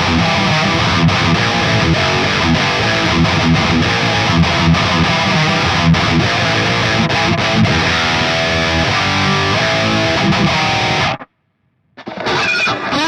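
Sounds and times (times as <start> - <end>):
electric guitar playing: 0.0 - 11.3, 12.0 - 13.0.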